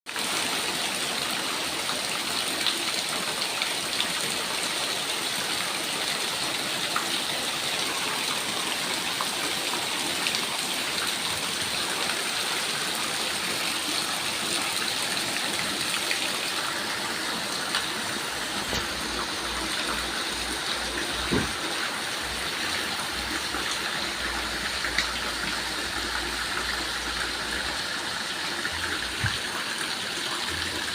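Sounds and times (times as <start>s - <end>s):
heavy rain falling: 0.1s - 30.9s
water drips and splashes: 0.1s - 30.9s.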